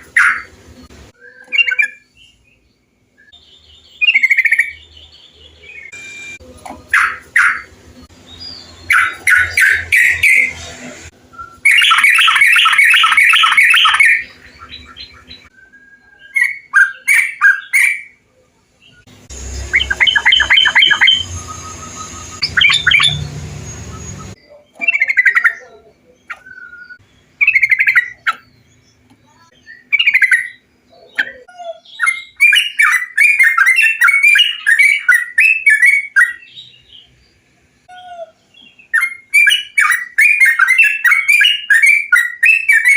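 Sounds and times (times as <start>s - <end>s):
recorded bulbul song: 0.0s - 42.9s.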